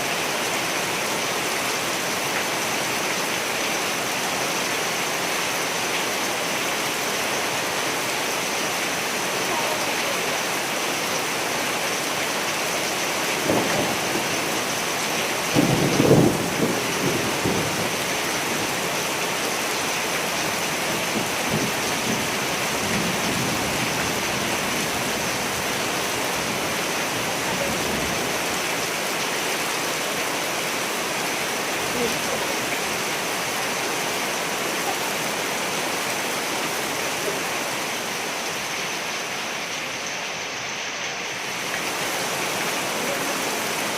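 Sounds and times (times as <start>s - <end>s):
steady rain: 0.0s - 43.9s
thunder rumbling: 15.5s - 18.0s.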